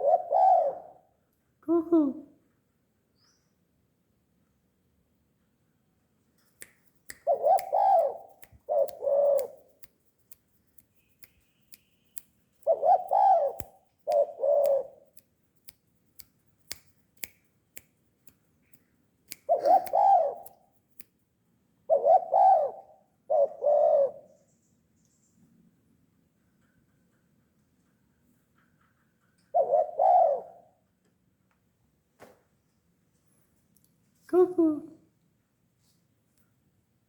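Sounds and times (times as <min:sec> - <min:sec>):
dove cooing: 0:00.0 - 0:01.1, 0:07.3 - 0:09.6, 0:12.6 - 0:15.0, 0:19.5 - 0:20.4, 0:21.9 - 0:24.3, 0:29.5 - 0:30.8.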